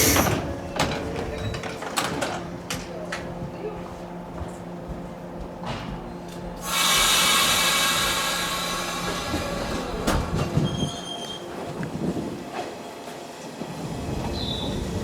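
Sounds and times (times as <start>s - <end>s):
electric train running: 6.6s - 15.0s.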